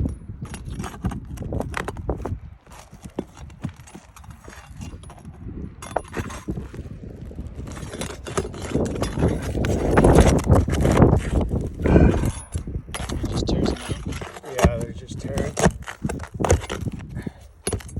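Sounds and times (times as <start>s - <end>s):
pry bar clinking and scraping: 0.0s - 17.9s.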